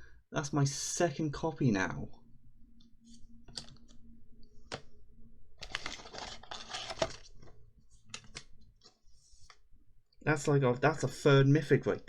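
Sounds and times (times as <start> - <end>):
cards rustling and sliding: 5.6 - 9.6.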